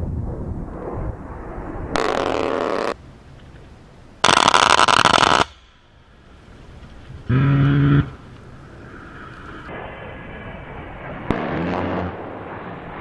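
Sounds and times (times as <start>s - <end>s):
low jet rumble: 0.0s - 4.3s, 5.5s - 13.0s
rotary cannon firing bursts: 4.2s - 5.7s, 11.3s - 13.0s.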